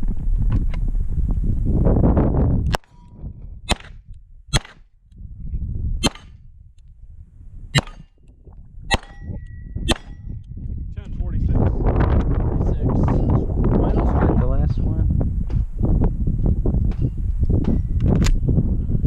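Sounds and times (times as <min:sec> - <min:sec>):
pistol shots: 0:03.7 - 0:04.8, 0:06.0 - 0:06.4, 0:07.8 - 0:08.1, 0:08.9 - 0:09.3, 0:09.9 - 0:10.2.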